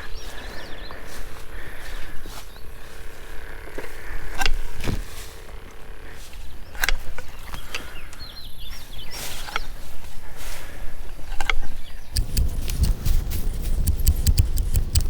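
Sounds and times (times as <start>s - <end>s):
sharp clicks: 12.2s - 15.0s.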